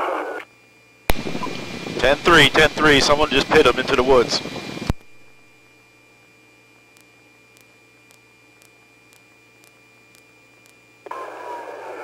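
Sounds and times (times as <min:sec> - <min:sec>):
faint radio hum: 0:00.0 - 0:12.0
radio static burst: 0:01.1 - 0:05.6.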